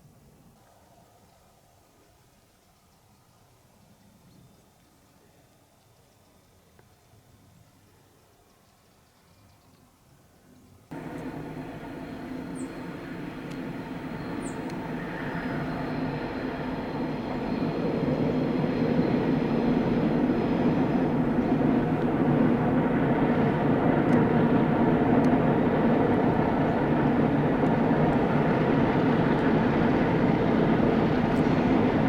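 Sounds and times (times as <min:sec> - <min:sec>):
faint high ticks: 0:10.9 - 0:15.9
train rumbling past: 0:10.9 - 0:32.0.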